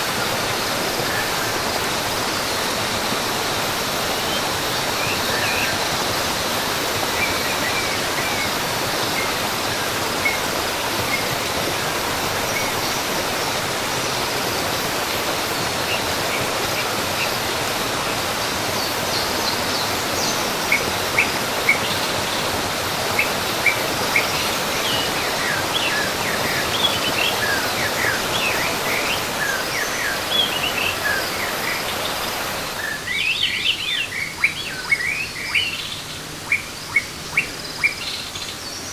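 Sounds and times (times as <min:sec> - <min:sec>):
falling water rushing: 0:00.0 - 0:38.2
birds chirping: 0:18.7 - 0:38.9.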